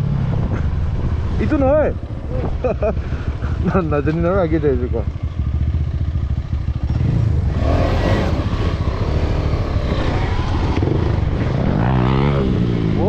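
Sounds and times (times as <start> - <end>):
motorcycle engine running: 0.0 - 13.0
rushing noise: 7.2 - 13.0.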